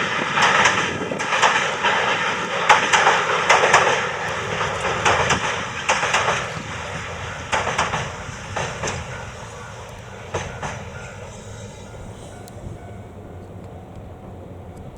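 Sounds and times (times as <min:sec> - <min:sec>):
train rumble: 0:00.0 - 0:14.9
train wheels clacking over rail joints: 0:00.0 - 0:14.9.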